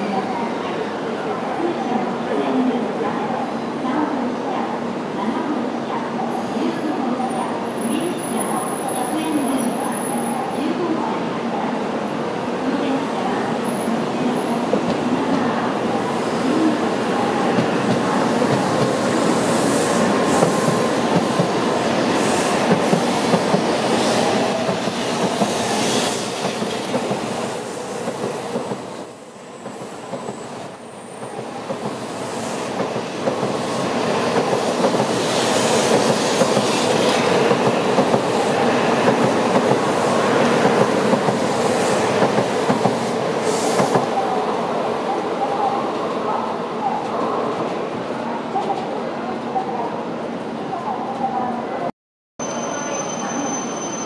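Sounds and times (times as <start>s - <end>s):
train wheels rumbling on rail: 13.4s - 44.2s.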